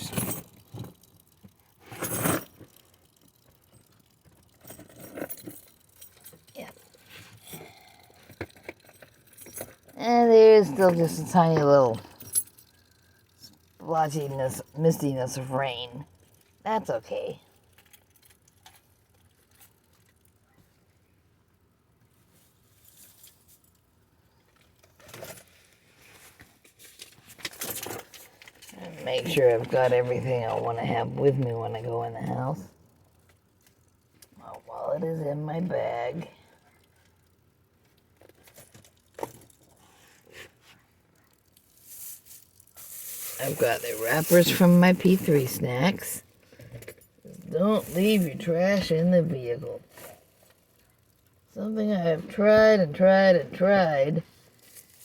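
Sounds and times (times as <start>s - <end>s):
keys clinking: 0.0s - 0.9s
rustle: 41.6s - 45.0s, 54.3s - 55.0s.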